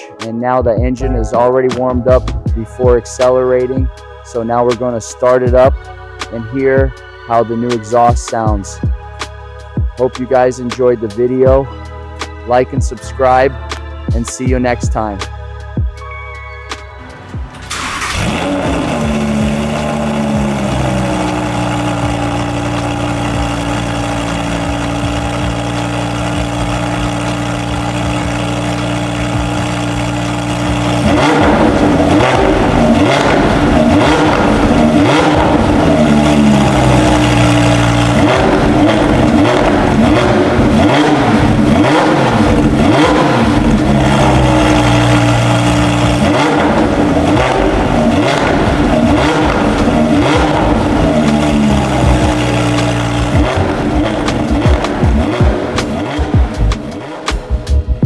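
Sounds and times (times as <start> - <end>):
sports car engine idling and revving: 2.0 - 7.8, 17.0 - 58.0
exhaust crackle: 17.0 - 57.7.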